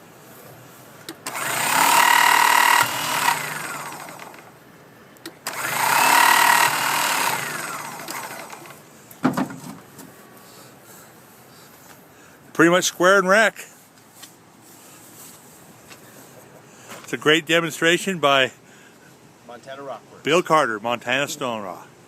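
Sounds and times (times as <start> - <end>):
stone trimmer whining: 1.2 - 4.5, 5.4 - 8.8.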